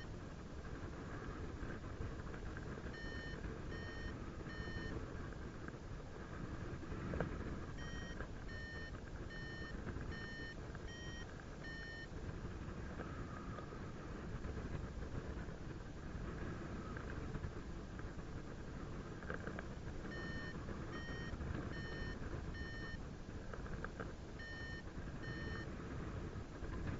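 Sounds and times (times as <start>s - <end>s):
variometer short high beeps: 3.0s - 4.9s, 7.8s - 12.1s, 20.1s - 23.0s, 24.4s - 25.7s.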